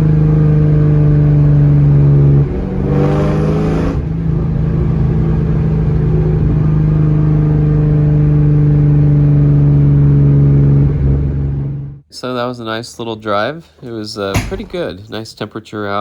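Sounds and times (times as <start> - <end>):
car engine running and revving: 0.0 - 11.9.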